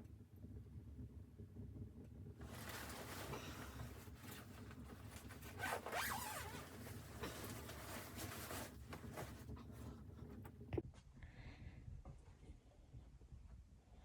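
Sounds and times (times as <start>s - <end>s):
rustling and scraping of gear: 2.4s - 10.5s.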